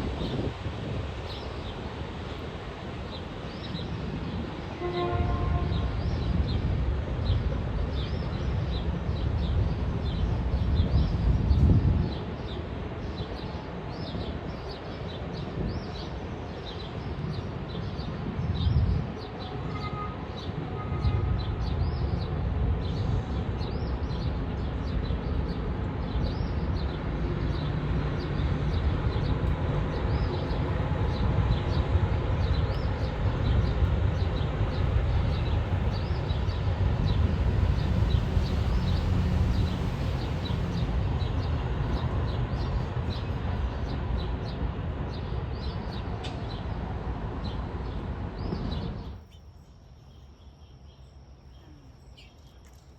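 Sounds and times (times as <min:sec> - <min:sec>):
train rumbling along track: 0:00.0 - 0:49.2
birds chirping: 0:31.2 - 0:52.9.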